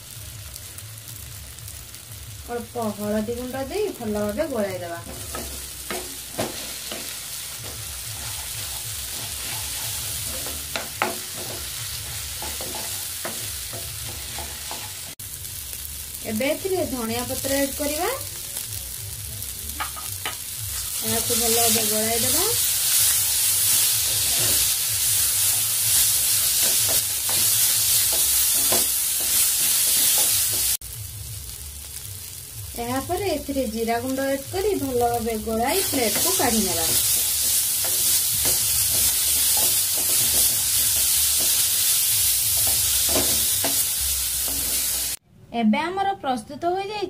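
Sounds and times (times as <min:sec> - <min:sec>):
food sizzling in hot oil: 0:00.0 - 0:45.2
wooden spatula scraping pan: 0:08.1 - 0:11.7
spatula knocking on pan: 0:10.2 - 0:11.7, 0:19.8 - 0:20.4.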